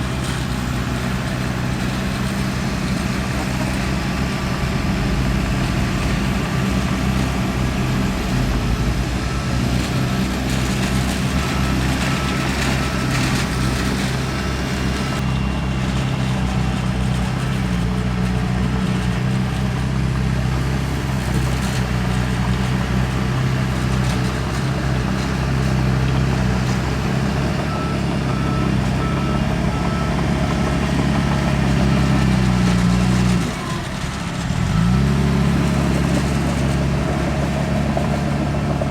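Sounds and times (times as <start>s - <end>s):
heavy diesel machinery running: 0.0s - 38.9s
reversing alarm beeping: 1.0s - 17.7s, 27.1s - 34.0s.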